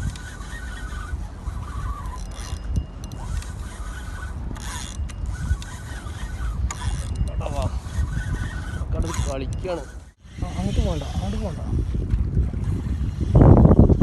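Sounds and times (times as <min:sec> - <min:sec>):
fishing reel ratcheting: 0:00.0 - 0:14.0
wind buffeting microphone: 0:00.0 - 0:14.0.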